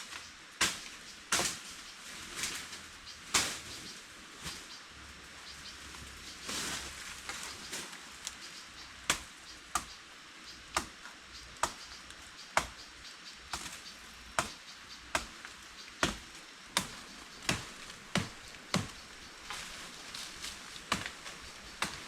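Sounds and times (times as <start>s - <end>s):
blade chopping: 16.8s - 19.0s.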